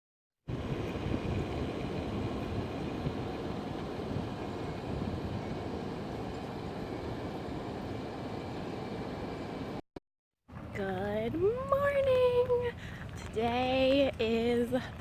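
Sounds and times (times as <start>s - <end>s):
vehicle rumbling in motion: 0.5s - 9.8s.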